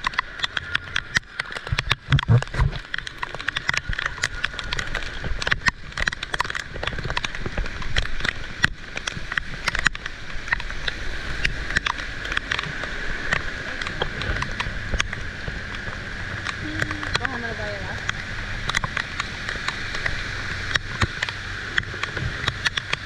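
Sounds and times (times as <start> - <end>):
heavy rain spattering: 0.0 - 23.0
low rumble: 10.1 - 22.6.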